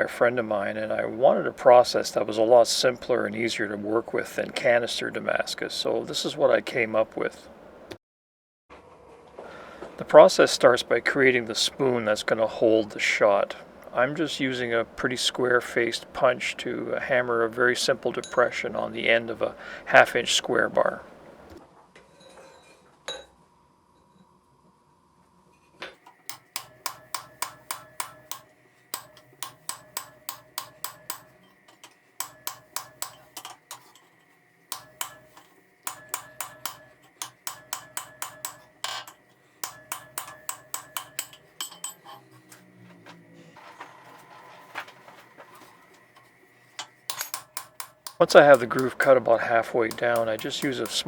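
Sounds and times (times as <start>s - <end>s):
hammer striking steel punch: 26.1s - 34.1s, 34.7s - 42.5s, 46.8s - 51.0s.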